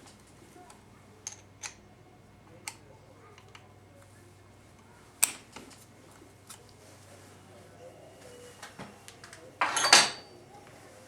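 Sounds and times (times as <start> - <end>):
faint low hum: 0.0 - 11.0
metal parts and tools clinking: 9.6 - 10.3.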